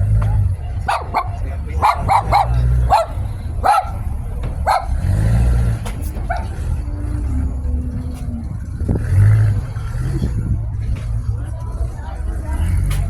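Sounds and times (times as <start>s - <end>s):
car engine rumbling: 0.0s - 13.0s
dog barking: 0.8s - 5.4s, 6.2s - 6.5s.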